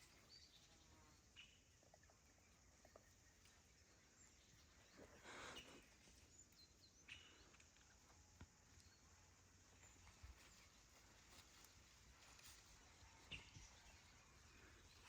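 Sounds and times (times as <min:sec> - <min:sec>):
faint bird chirps: 0:00.0 - 0:11.1
soft rustle: 0:09.5 - 0:15.0.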